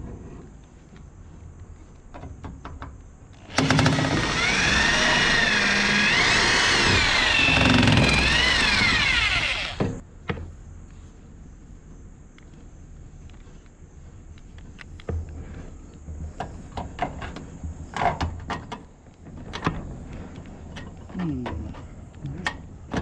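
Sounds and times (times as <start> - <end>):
power tool motor running: 3.4 - 10.0.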